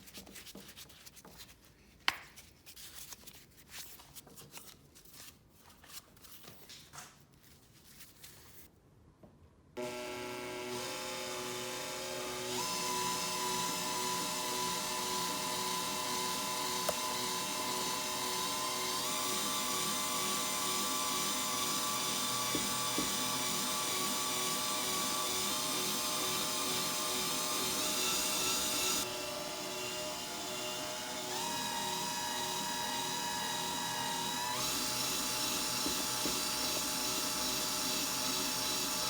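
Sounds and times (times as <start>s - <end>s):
small electric motor whining: 9.8s - 39.0s.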